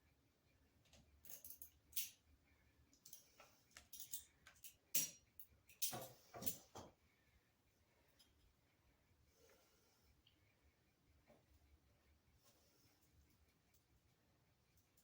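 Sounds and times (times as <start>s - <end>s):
small parts clicking and rustling: 0.8s - 2.3s, 2.9s - 6.8s.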